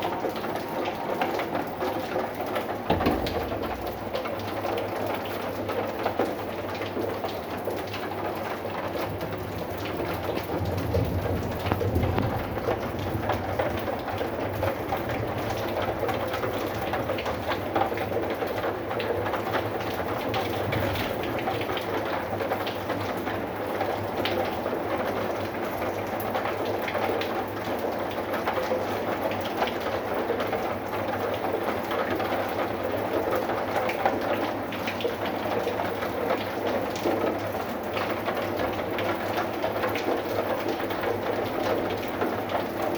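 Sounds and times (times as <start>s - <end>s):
raindrops ticking: 0.0s - 42.9s
steady rain hiss: 8.6s - 23.8s.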